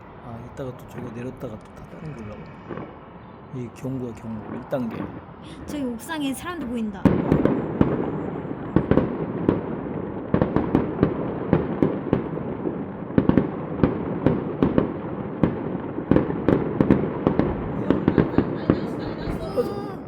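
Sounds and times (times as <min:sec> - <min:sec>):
rumbling crackle: 0:00.0 - 0:05.8, 0:07.1 - 0:19.5
fireworks bangs and pops: 0:07.0 - 0:19.7.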